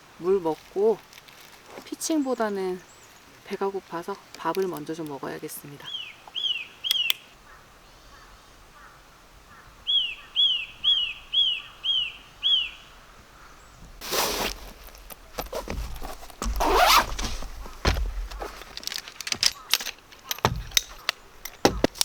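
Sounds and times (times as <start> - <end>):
rustling noise: 0.0 - 5.1, 13.8 - 22.0
bird calling: 5.6 - 22.0.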